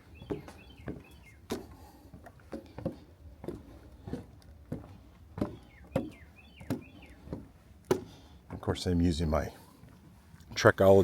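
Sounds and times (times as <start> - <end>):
footsteps on boardwalk: 0.0 - 11.0
trekking pole taps: 5.4 - 8.2.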